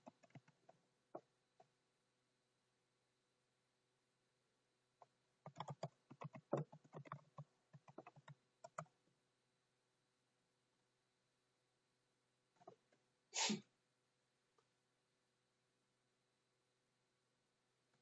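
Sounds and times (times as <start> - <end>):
laptop keyboard typing: 0.0 - 1.7, 5.4 - 9.0.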